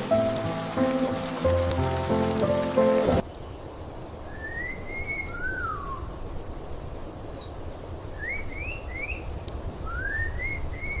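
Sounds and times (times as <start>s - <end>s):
bird singing whistled phrases: 4.3s - 6.1s, 8.1s - 11.0s.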